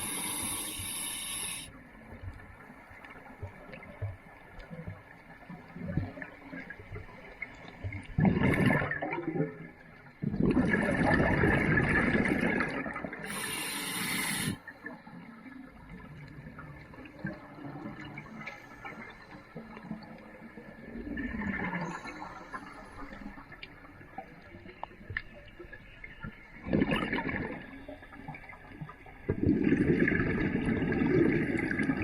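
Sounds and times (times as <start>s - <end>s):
sharp high hiss: 0.0s - 1.7s, 13.3s - 14.6s
air bubbles rushing underwater: 7.9s - 9.6s, 10.2s - 13.4s, 26.6s - 28.5s, 29.2s - 32.0s.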